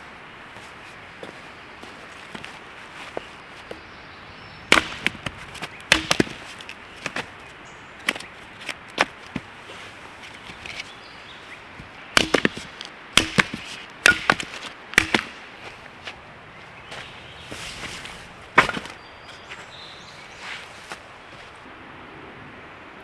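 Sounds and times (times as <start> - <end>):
axe chopping wood: 4.7 - 7.3, 8.0 - 9.6, 11.8 - 16.2, 16.9 - 19.0.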